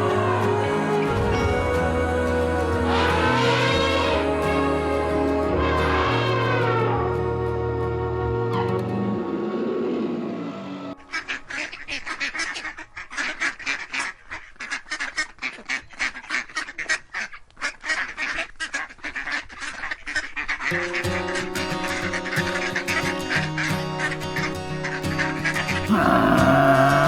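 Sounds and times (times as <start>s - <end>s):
music with steady tones: 0.0s - 11.2s
birds honking: 0.0s - 15.2s.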